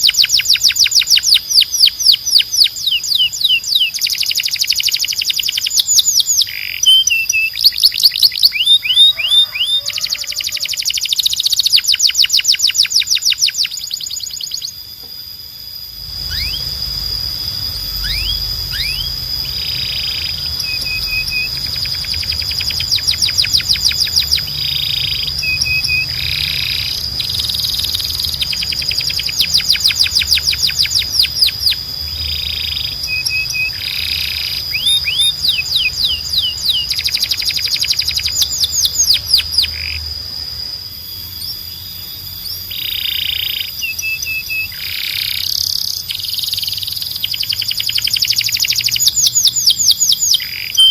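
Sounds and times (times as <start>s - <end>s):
canary singing trills: 0.0s - 50.9s
steady high tone: 14.7s - 45.4s.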